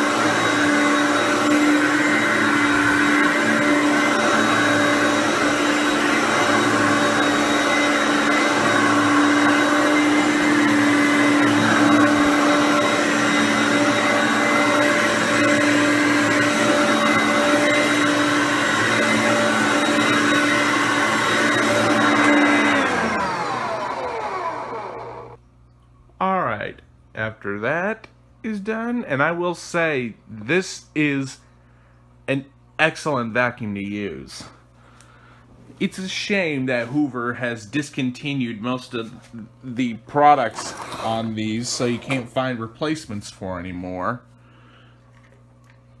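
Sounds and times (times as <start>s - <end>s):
motor winding down: 0.0s - 25.4s
vacuum cleaner whining: 0.0s - 25.4s, 35.8s - 43.0s.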